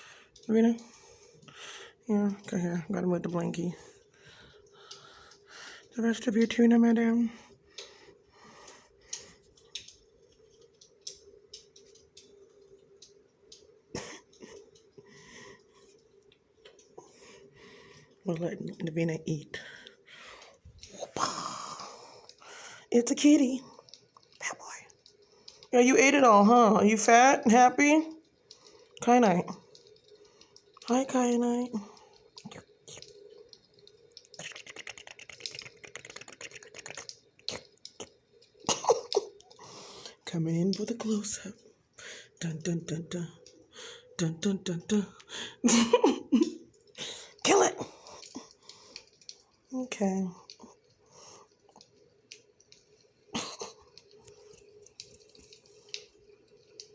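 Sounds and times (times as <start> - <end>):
faint steady hum: 0.0 - 56.9
cat eating with mouth clicks: 7.4 - 18.2, 31.9 - 40.2, 50.4 - 56.9.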